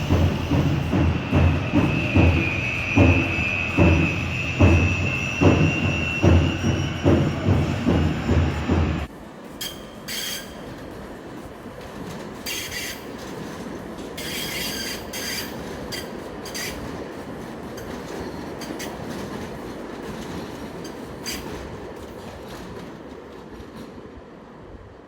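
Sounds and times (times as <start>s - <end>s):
steel wheels squealing: 0.0s - 10.9s, 12.4s - 13.4s, 14.1s - 17.0s, 20.3s - 21.8s
train rumble: 0.0s - 25.0s.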